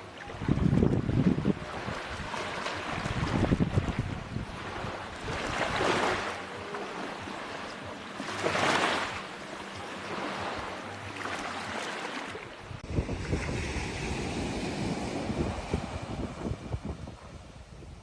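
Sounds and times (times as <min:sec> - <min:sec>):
sea waves breaking on a beach: 0:00.0 - 0:18.0.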